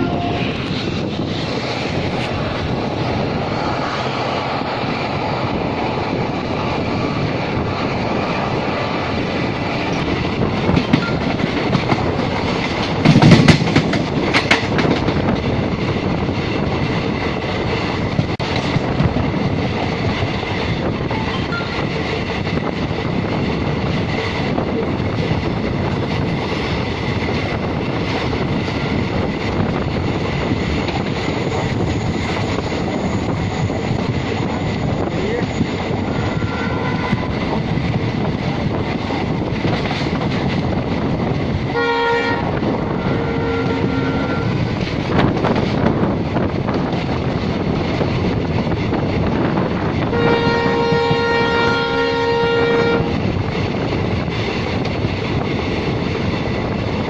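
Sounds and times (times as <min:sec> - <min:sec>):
loud train clatter: 0:00.0 - 0:57.0
train rumble: 0:00.0 - 0:57.0
wheels clacking over rail joints: 0:03.7 - 0:15.8.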